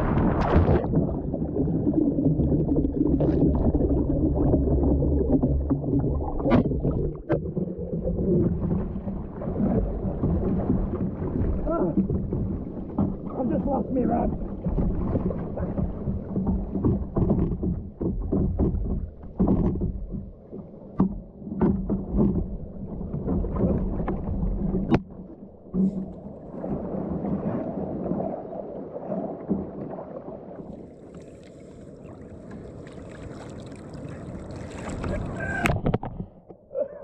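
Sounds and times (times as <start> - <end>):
water sloshing around kayak: 0.0 - 37.0
knocks and bumps on kayak: 4.4 - 28.3
wind: 5.3 - 37.0.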